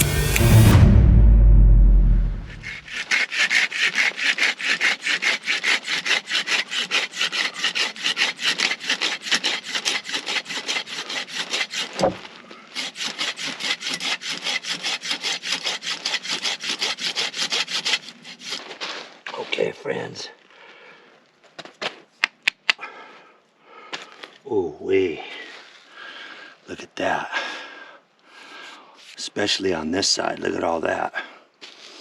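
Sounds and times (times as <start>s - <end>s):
pull saw cutting wood: 0.0s - 0.8s, 2.4s - 18.6s.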